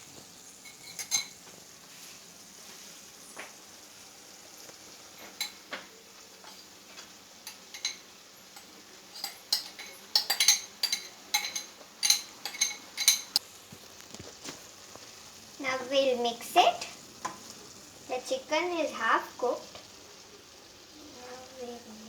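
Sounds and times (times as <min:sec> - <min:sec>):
food sizzling in a pan: 0:00.0 - 0:22.0
spoon clinking against cookware: 0:00.6 - 0:01.4, 0:05.2 - 0:05.7, 0:06.4 - 0:13.4.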